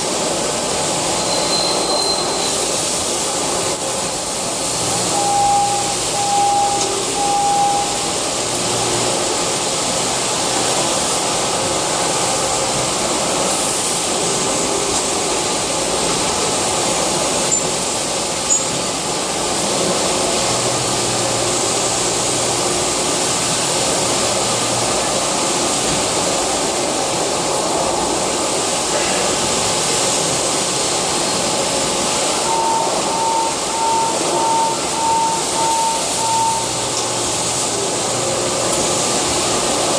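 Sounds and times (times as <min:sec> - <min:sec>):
lathe hissing and humming: 0:00.0 - 0:39.9
pulsing tone: 0:05.1 - 0:08.4, 0:32.4 - 0:37.0.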